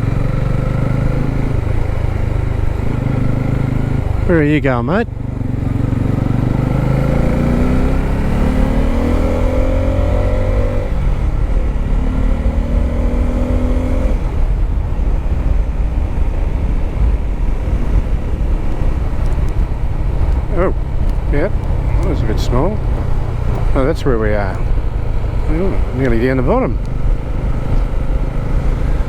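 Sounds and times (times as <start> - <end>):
motorcycle engine accelerating: 0.0 - 29.0
wind noise on microphone: 10.9 - 22.2.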